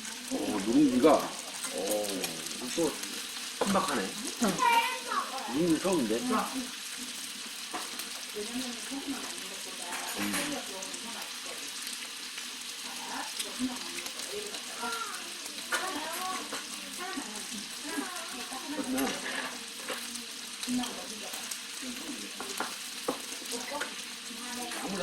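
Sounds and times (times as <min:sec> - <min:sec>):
background chatter: 0:00.0 - 0:25.0
tableware clinking: 0:09.9 - 0:10.6.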